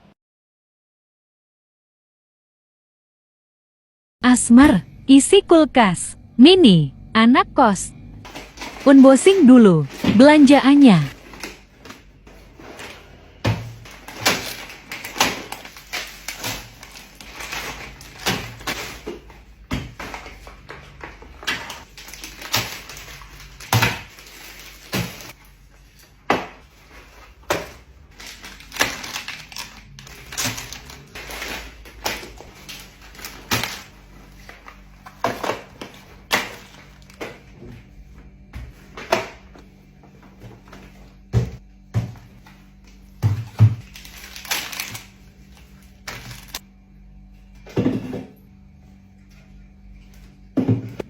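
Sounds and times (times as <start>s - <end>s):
items clicking and knocking: 11.0s - 37.9s
packaging crinkling: 13.9s - 19.1s, 21.7s - 25.3s, 26.7s - 37.2s, 43.8s - 46.6s.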